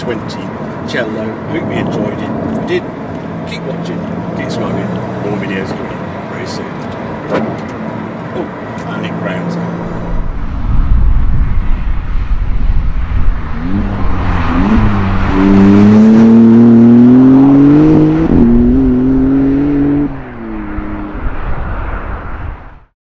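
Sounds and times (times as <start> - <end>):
car engine accelerating hard: 7.4 - 22.3.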